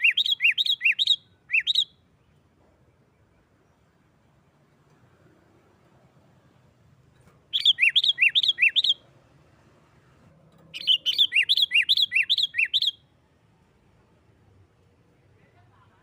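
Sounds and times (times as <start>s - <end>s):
bulbul calling sharp notes: 7.5s - 9.0s, 10.8s - 13.0s.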